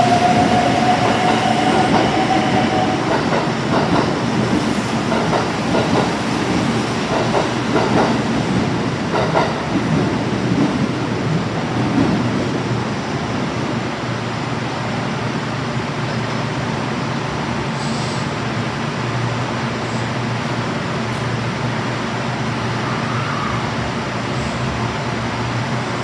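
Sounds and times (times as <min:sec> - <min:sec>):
train wheels clattering: 0:00.0 - 0:11.0.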